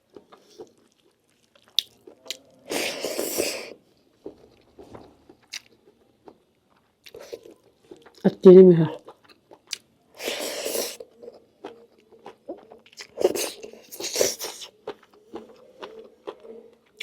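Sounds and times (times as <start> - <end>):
chewing and wet mouth clicks: 0.1 - 2.4, 9.0 - 9.9, 10.9 - 17.0.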